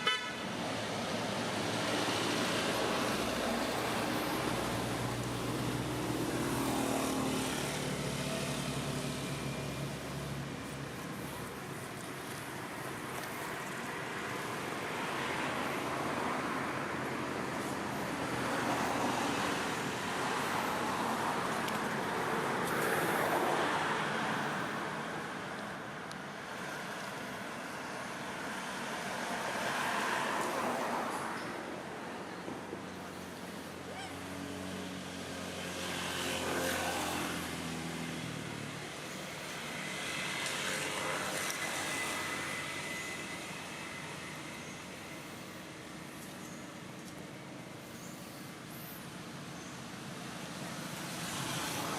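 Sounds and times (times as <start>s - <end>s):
steady rushing road traffic: 0.0s - 51.9s
engine passing by: 1.2s - 11.6s, 33.8s - 45.4s.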